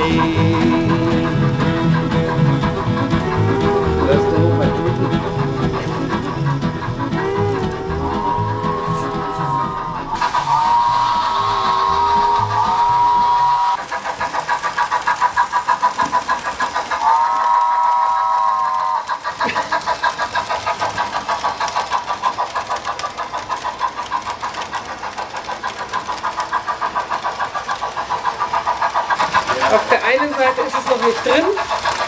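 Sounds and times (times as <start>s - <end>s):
model locomotive chuffing: 0.0s - 32.0s.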